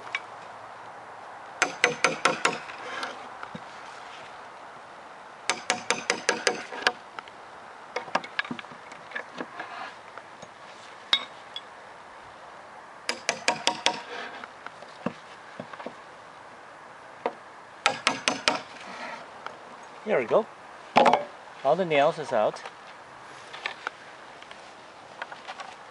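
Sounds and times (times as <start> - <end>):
hammer striking metal: 1.6 - 2.7, 5.5 - 7.0, 17.8 - 18.7.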